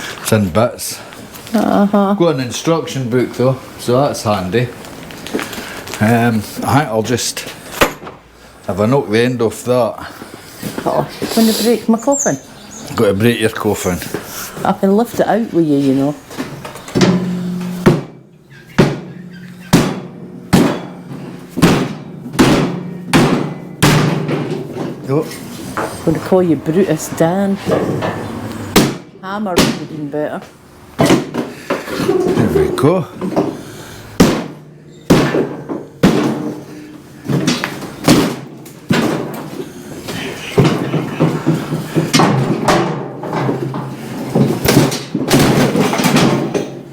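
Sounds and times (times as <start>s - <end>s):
heavy blows on wooden crate: 16.9s - 25.9s, 27.6s - 30.0s, 33.2s - 46.6s
brief ringing tone: 17.0s - 18.0s
hard whacks on wooden crate: 18.8s - 24.6s, 28.7s - 29.9s, 34.2s - 36.6s
loose wood rattling: 34.2s - 46.9s.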